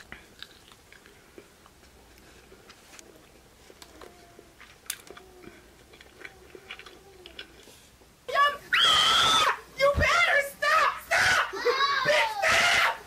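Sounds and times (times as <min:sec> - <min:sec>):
wet chewing sounds: 0:00.0 - 0:08.2.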